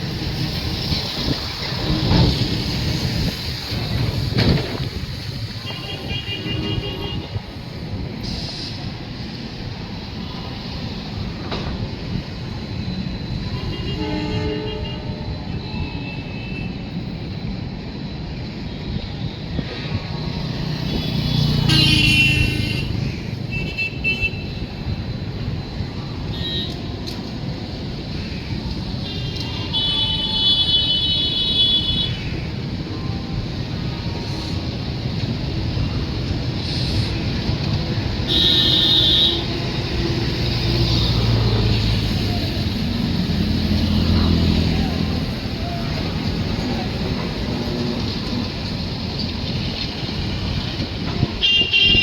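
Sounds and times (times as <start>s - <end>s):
rumble of moving vehicles: 0.0s - 52.0s
car horns: 5.5s - 7.5s, 13.5s - 16.7s, 20.9s - 24.7s, 28.9s - 32.6s, 38.1s - 40.1s, 51.0s - 52.0s.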